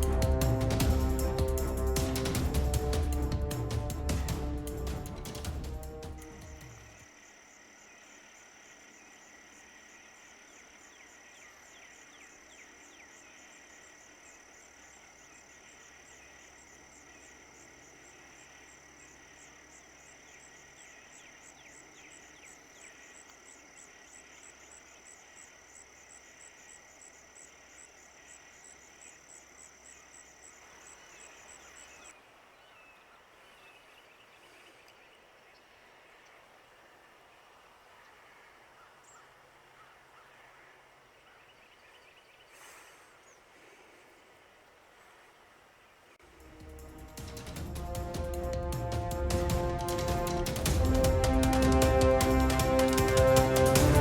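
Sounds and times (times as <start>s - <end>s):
pulsing insect chirr: 0.0s - 32.2s
birds chirping: 0.0s - 54.0s.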